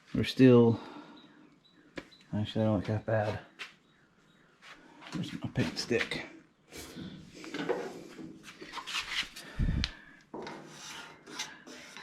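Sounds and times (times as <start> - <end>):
wooden stick scraping: 7.5 - 12.0.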